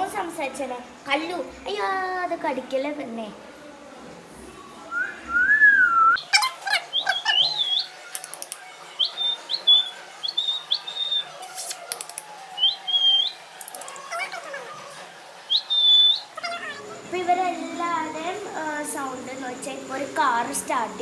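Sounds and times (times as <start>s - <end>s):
parrot chirping whistles: 4.9s - 8.0s, 8.9s - 11.5s, 12.5s - 13.6s, 15.5s - 17.0s
parrot gliding whistle: 4.9s - 8.0s, 8.9s - 11.4s, 12.5s - 14.6s, 15.4s - 17.1s
parrot clicks: 8.1s - 8.7s, 11.5s - 12.4s, 13.6s - 14.1s.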